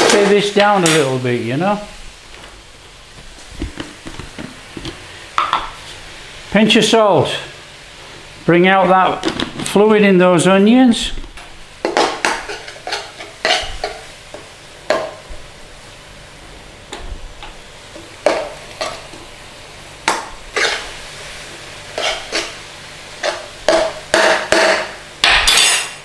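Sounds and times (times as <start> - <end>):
onion sizzling in a pan: 0.0 - 26.0
utensil scraping a pan: 11.9 - 14.0, 20.5 - 21.0, 21.9 - 22.6.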